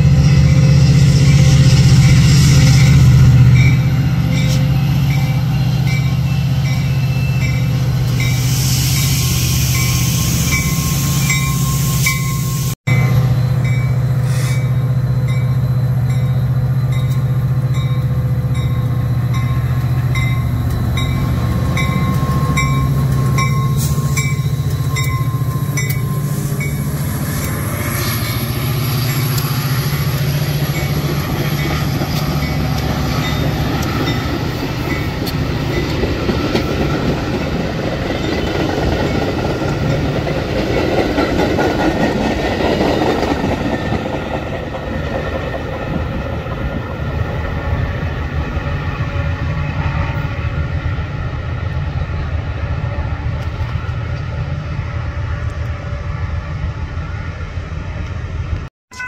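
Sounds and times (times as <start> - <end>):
crossing bell ringing: 0.0 - 44.5
locomotive engine droning: 0.0 - 59.0
railcars rumbling and rattling: 0.0 - 59.0.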